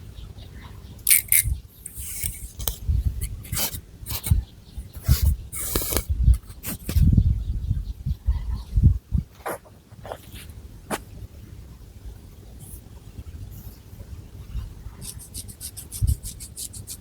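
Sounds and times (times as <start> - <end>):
fingernails scratching hair: 15.0 - 17.0.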